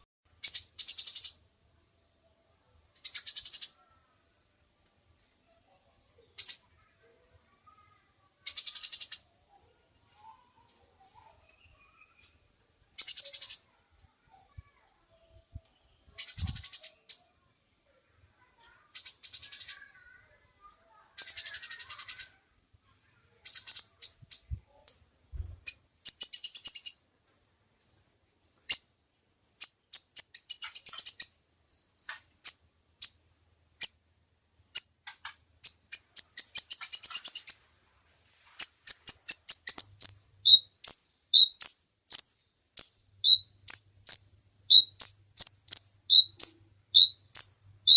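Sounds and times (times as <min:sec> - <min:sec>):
bird trilling chirps: 0:00.0 - 0:01.5, 0:03.0 - 0:04.1, 0:06.2 - 0:07.0, 0:07.7 - 0:09.5, 0:13.0 - 0:14.6, 0:15.8 - 0:17.4, 0:18.4 - 0:20.4, 0:21.0 - 0:22.5, 0:23.4 - 0:35.0, 0:35.6 - 0:37.7, 0:38.6 - 0:47.9
sharp bird chirps: 0:00.0 - 0:01.5, 0:03.0 - 0:03.9, 0:06.3 - 0:06.9, 0:08.4 - 0:09.3, 0:13.0 - 0:13.8, 0:15.8 - 0:17.3, 0:18.9 - 0:20.0, 0:21.2 - 0:22.4, 0:23.4 - 0:35.0, 0:35.6 - 0:37.6, 0:38.6 - 0:47.9.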